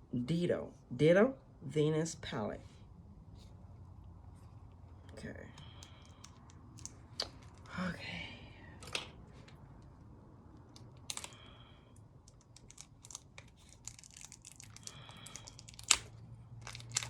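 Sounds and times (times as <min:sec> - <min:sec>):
packaging crinkling: 0:12.2 - 0:17.0.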